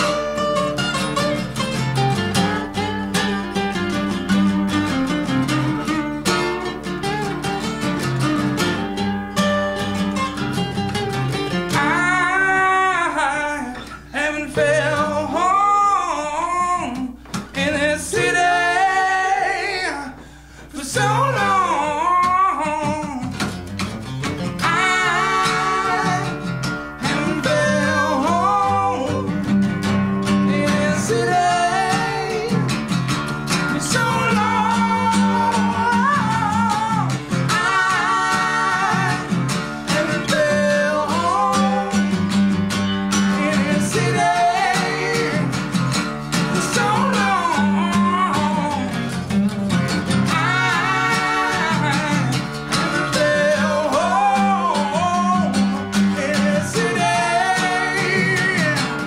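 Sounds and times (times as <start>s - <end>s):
strummed acoustic guitar: 0.0s - 59.0s
man singing: 2.2s - 3.6s, 11.7s - 23.6s, 24.6s - 29.5s, 30.2s - 42.3s, 43.1s - 59.0s.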